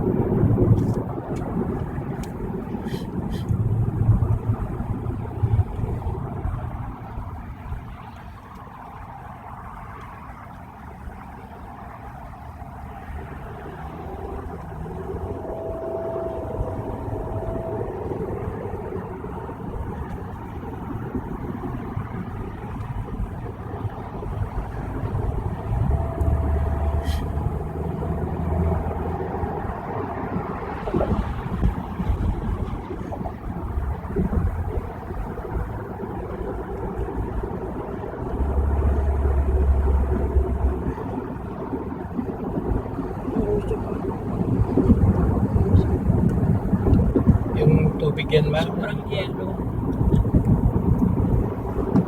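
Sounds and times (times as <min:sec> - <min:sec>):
tyre and engine rumble: 0:00.0 - 0:52.0
faint whine: 0:14.0 - 0:29.1.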